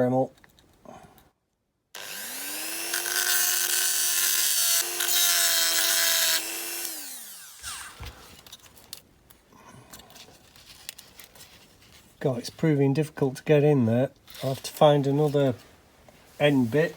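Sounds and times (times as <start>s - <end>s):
rotary tool grinding metal: 2.0s - 8.0s.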